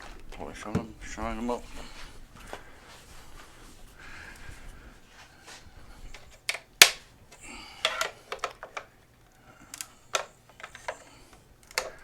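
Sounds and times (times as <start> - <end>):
plastic panels clicking: 6.2 - 7.0, 7.8 - 8.9, 9.7 - 12.0.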